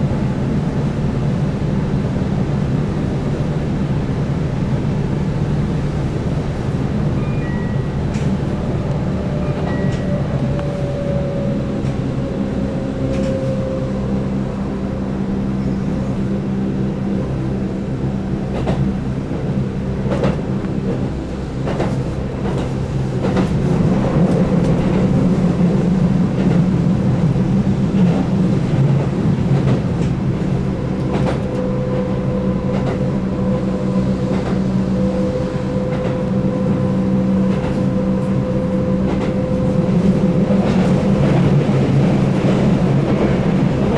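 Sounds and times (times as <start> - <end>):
rail joint clicks: 6.0 - 14.7, 18.4 - 43.9.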